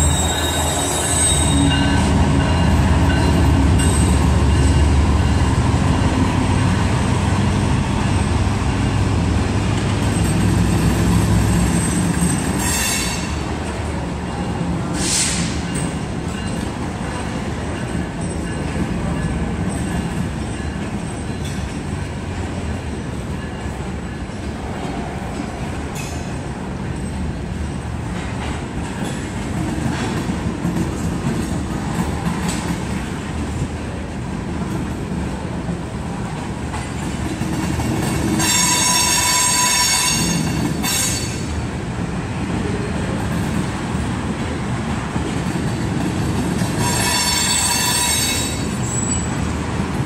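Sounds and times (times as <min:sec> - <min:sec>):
high wheel squeal: 0:00.0 - 0:05.4, 0:11.4 - 0:13.4, 0:38.4 - 0:41.5, 0:46.8 - 0:49.4
diesel locomotive engine rumbling: 0:00.0 - 0:50.0
train wheels rolling on rails: 0:00.0 - 0:50.0.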